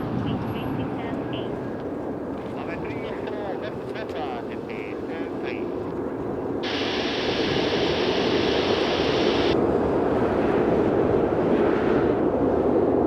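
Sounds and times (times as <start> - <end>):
jet airliner engine rumble: 0.0 - 13.0
high hiss: 6.6 - 9.6.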